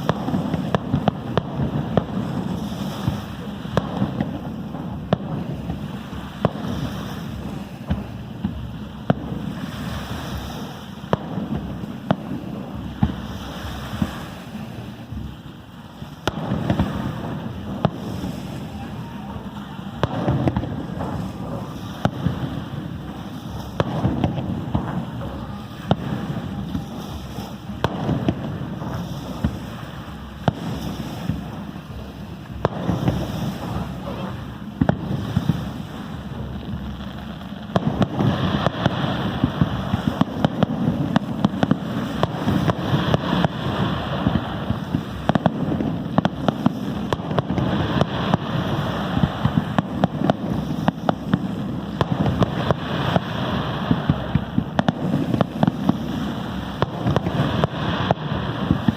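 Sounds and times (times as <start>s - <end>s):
fireworks bangs: 0.0s - 58.9s
rumbling background: 0.0s - 58.9s.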